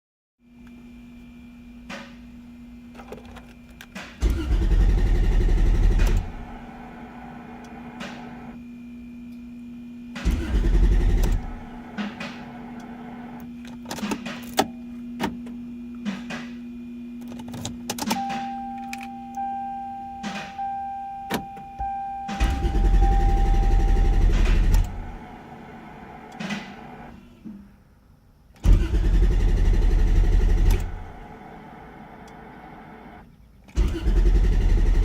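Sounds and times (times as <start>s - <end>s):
steady hum: 0.4s - 35.0s
car engine cranking: 4.2s - 8.6s, 10.2s - 14.2s, 22.3s - 27.1s, 28.6s - 33.0s, 33.7s - 35.0s.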